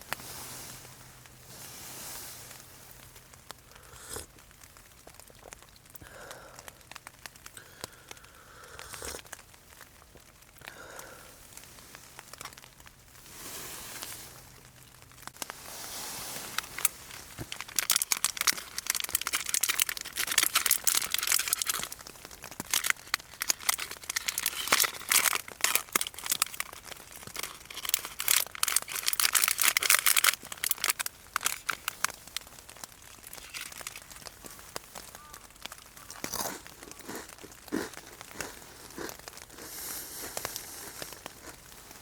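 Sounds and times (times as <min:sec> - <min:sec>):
crinkling rustling handling noise: 0:00.0 - 0:03.7, 0:09.2 - 0:42.0.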